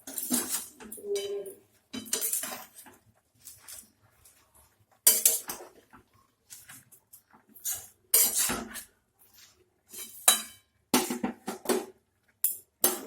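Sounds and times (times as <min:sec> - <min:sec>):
metal utensil scraping a pan: 0:00.0 - 0:05.8, 0:07.6 - 0:11.2.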